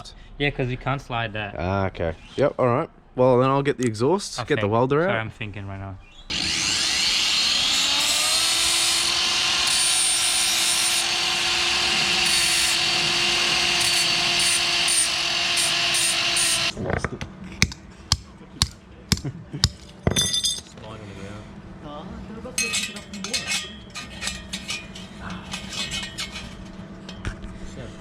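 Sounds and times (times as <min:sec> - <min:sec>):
angle grinder cutting steel pipe: 0:06.3 - 0:16.7
sharp metal knocks: 0:17.6 - 0:20.7.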